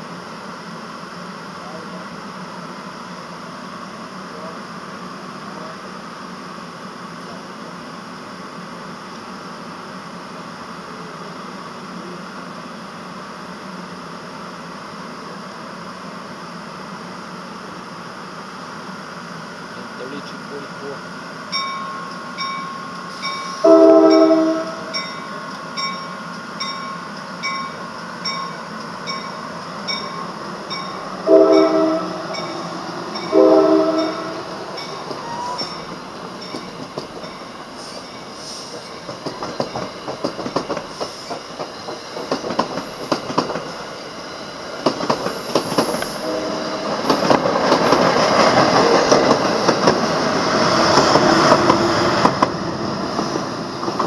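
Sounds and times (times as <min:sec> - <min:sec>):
crossing bell dinging: 0:21.5 - 0:40.4
train horn blasts: 0:23.5 - 0:25.0, 0:31.2 - 0:32.6, 0:33.2 - 0:34.5, 0:46.1 - 0:47.2
train wheels clattering: 0:25.0 - 0:54.0.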